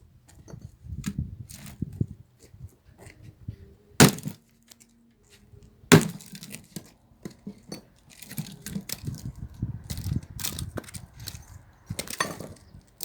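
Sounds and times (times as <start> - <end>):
axe chopping firewood: 4.0 - 4.4, 5.9 - 6.6.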